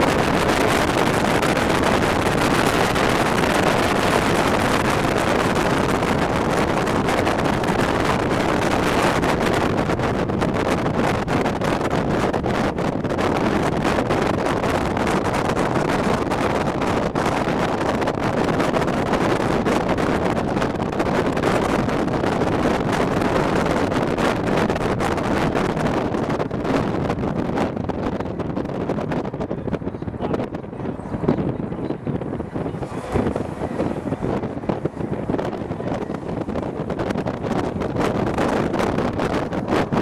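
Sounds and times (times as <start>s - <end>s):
strong wind on microphone: 0.0s - 40.0s.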